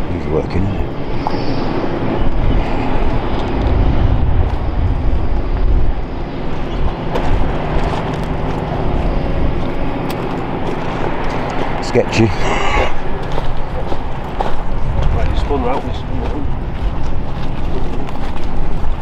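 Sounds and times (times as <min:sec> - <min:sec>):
demolition machinery rumbling: 0:01.9 - 0:19.0.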